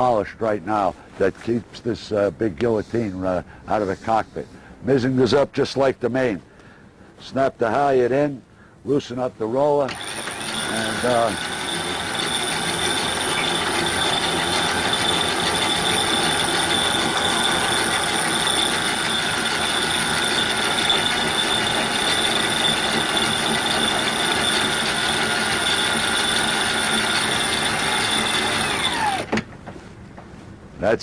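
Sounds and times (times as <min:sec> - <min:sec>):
electric winch motor whine: 0:09.9 - 0:29.5.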